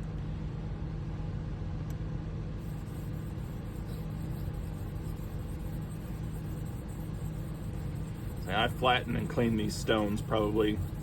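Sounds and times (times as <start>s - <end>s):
electric motor humming: 2.6s - 11.0s.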